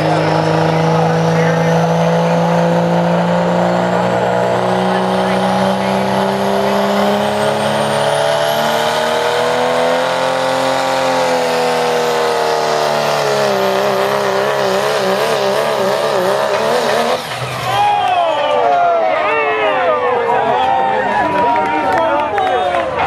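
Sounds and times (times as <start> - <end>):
truck engine at high revs: 0.0 - 18.1.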